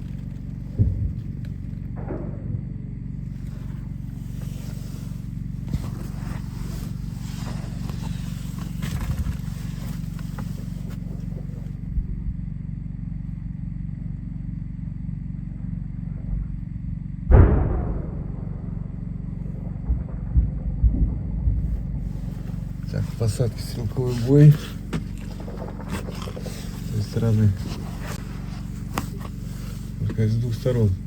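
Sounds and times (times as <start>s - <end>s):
steady low hum: 0.0s - 31.0s
muffled explosion: 0.7s - 3.0s, 17.2s - 23.7s
small-arms gunshots: 17.3s - 20.5s.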